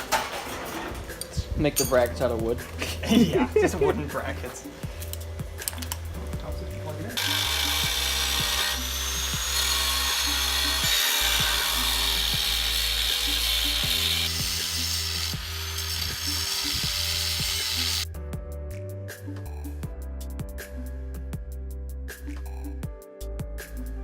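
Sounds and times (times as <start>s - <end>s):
background music with beat: 0.0s - 24.0s
power tool grinding: 7.2s - 18.0s.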